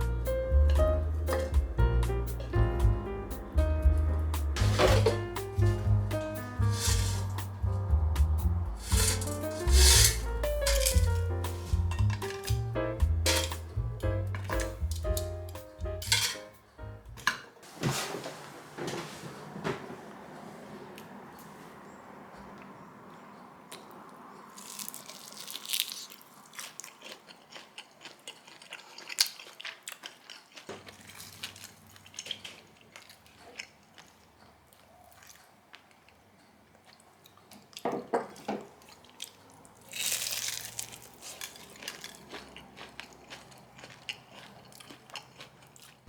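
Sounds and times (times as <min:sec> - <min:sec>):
chewing clicks: 0:23.7 - 0:37.8, 0:38.4 - 0:46.0
crunchy bites of chicken wings: 0:24.6 - 0:35.9, 0:38.9 - 0:46.0.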